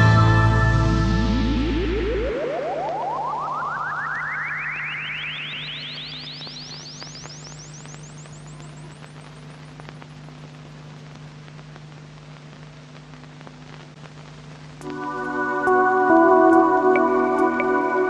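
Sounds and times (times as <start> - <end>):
low steady hum: 0.0 - 18.0
synth riser chirps: 0.8 - 9.3
faint clicks: 6.3 - 15.0.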